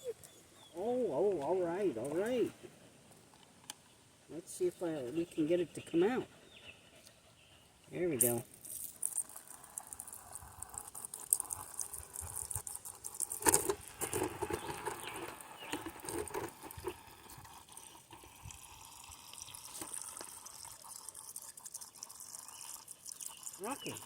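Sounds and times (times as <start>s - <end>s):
water splashing and clicking: 8.2s - 24.0s
water trickling into a bowl: 8.2s - 24.0s.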